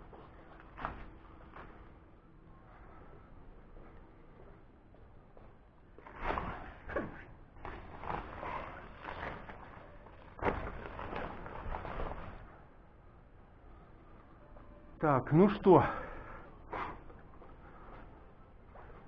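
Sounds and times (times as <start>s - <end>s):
tent fabric rustling: 6.0s - 12.5s.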